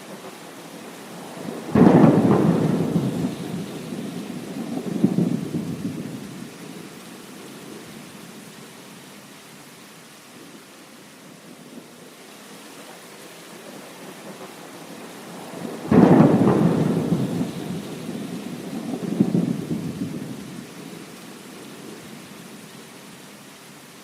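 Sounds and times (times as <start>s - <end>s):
rain falling: 0.0s - 24.0s
thunder crack and rumble: 1.4s - 6.5s, 15.4s - 20.7s.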